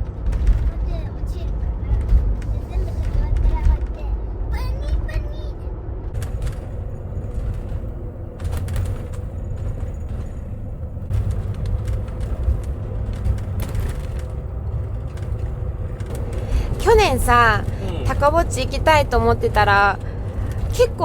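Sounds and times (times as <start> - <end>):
road and engine rumble: 0.0 - 21.0
light clicks and rattles: 6.1 - 21.0.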